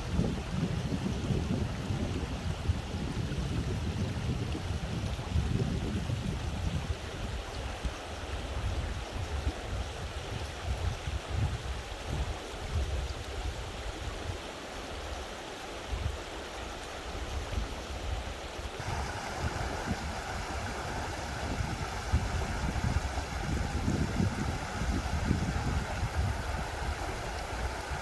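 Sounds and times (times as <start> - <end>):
stream rushing over rocks: 5.1 - 28.0
low uneven rumble: 18.8 - 28.0.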